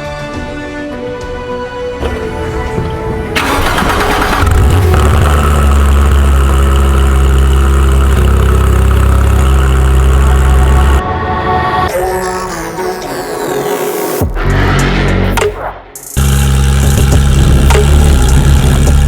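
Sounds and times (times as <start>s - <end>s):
car engine idling: 2.0s - 11.0s
engine cranking: 2.0s - 11.0s.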